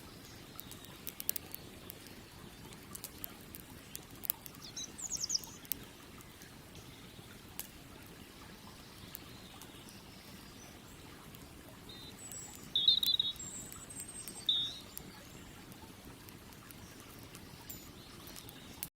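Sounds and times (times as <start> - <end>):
campfire crackling: 0.0 - 18.9
bird chirping: 3.8 - 5.8, 8.6 - 15.6, 16.8 - 18.9.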